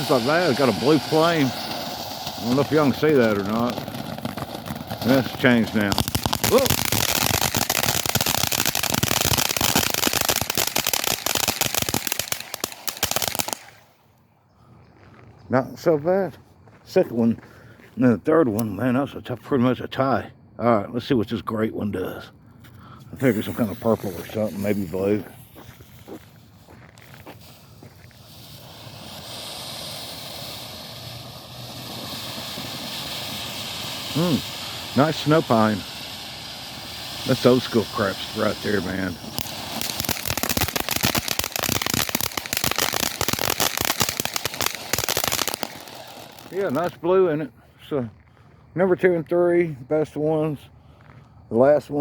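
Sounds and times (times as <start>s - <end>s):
rapid firework crackling: 0.0s - 14.0s, 23.2s - 47.1s
firework fountain hissing: 0.0s - 14.1s, 23.0s - 47.6s.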